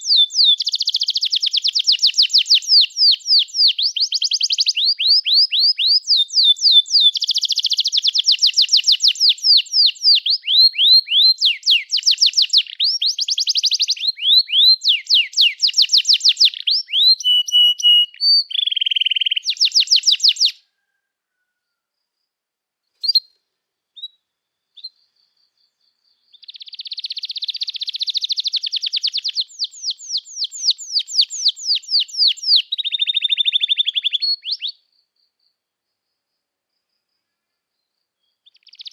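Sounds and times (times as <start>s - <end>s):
canary trilling and chirping: 0.0s - 20.6s, 23.0s - 23.3s, 26.3s - 34.7s, 38.4s - 38.9s.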